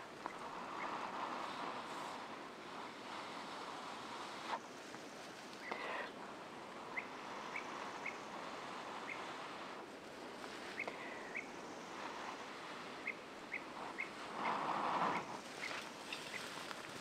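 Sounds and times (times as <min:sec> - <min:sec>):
small bird chirping: 0:06.9 - 0:08.3, 0:15.2 - 0:16.6.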